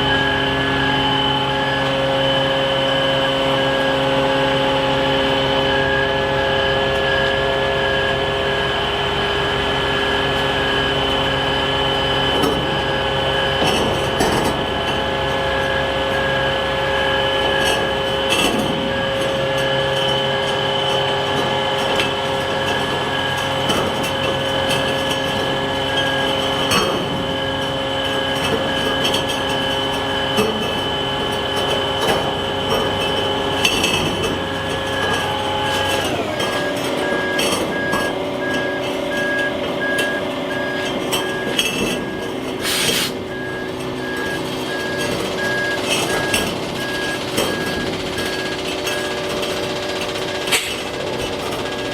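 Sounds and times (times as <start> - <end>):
truck engine drone: 0.0 - 51.9
back-up alarm beeping: 10.0 - 51.9
metal knocks and clanks: 17.5 - 51.9.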